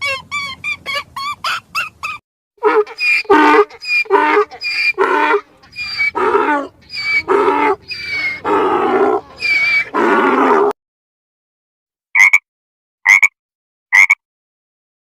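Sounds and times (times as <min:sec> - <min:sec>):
animal calling loudly: 0:00.0 - 0:10.7.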